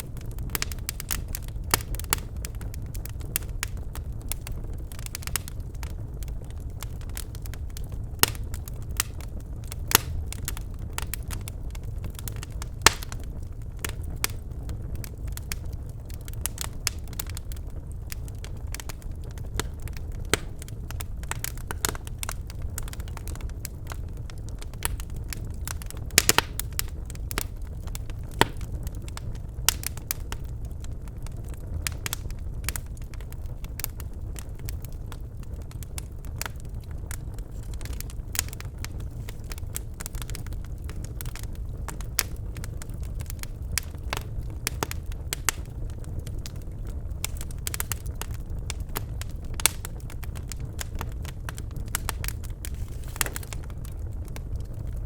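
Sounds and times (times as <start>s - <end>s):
fire crackling and popping: 0.0s - 55.0s
fire rumbling in fireplace: 0.0s - 55.0s.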